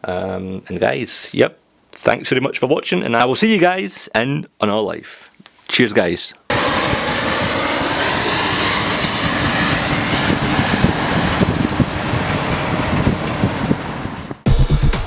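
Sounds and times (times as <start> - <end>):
jet airliner flying overhead: 6.5 - 14.4.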